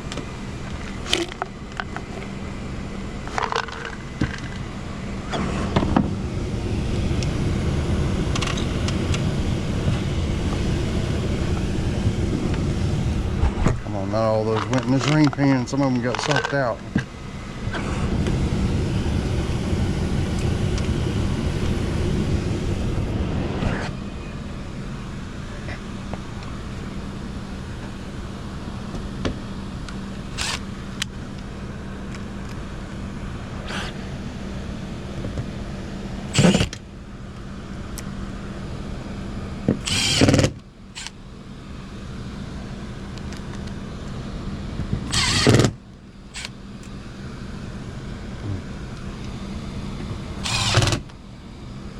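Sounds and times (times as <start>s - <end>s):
steady machine hum: 0.0s - 51.9s
cordless power driver bursts: 30.2s - 30.7s, 36.3s - 36.8s, 39.8s - 41.2s, 45.1s - 46.6s, 50.4s - 51.1s.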